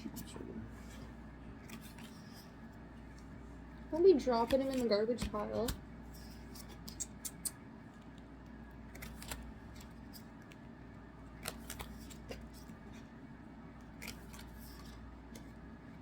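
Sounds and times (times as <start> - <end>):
low steady hum: 0.0 - 16.0
trading cards clicking and rustling: 1.6 - 3.3, 4.0 - 10.6, 11.3 - 13.1, 13.8 - 15.6.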